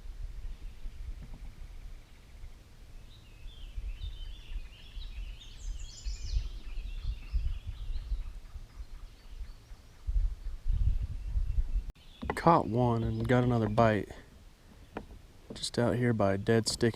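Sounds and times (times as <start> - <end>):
bird chattering song: 0.5 - 14.1.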